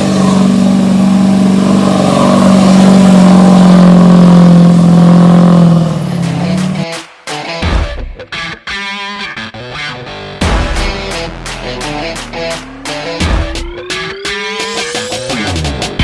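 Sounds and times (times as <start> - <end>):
diesel truck engine revving: 0.0 - 6.9
music: 6.2 - 16.0.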